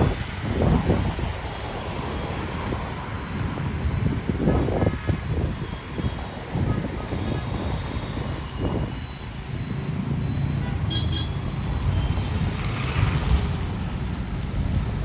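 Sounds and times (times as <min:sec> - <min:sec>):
rumble of passing vehicles: 0:00.0 - 0:15.0.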